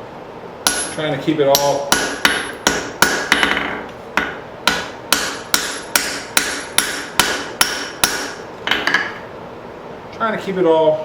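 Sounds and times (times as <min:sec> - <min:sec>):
hammer striking steel on anvil: 0:00.6 - 0:09.2.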